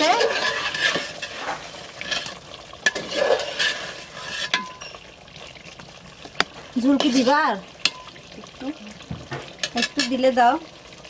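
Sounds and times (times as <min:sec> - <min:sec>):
chicken sizzling in a pot: 0:00.0 - 0:11.0
spoon clinking against pot: 0:04.4 - 0:05.0, 0:07.8 - 0:08.1.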